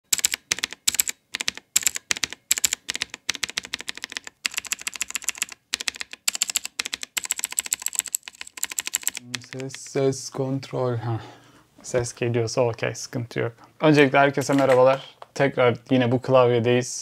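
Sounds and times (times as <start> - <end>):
mechanical keyboard typing: 0.1 - 10.0.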